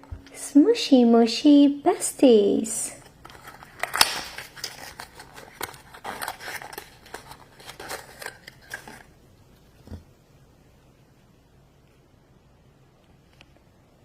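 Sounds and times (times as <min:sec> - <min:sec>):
plastic packaging clicks and rustles: 0:03.0 - 0:09.2.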